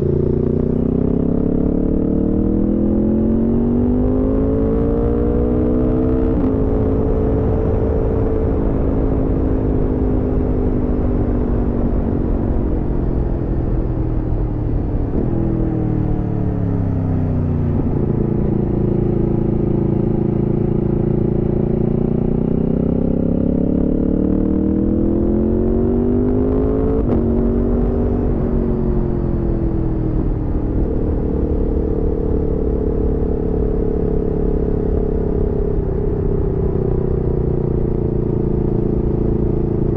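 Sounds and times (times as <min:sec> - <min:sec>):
motorcycle engine revving: 0:00.0 - 0:12.6, 0:16.5 - 0:39.9
noisy rumble: 0:17.3 - 0:21.0.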